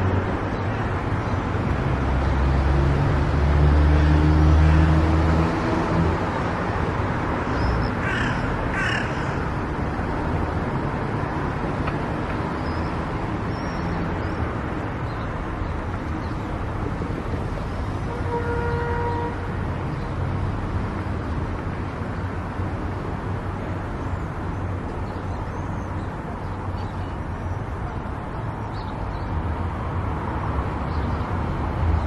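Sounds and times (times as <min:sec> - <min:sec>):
car driving on highway: 0:00.0 - 0:32.0
crow cawing: 0:08.0 - 0:09.6.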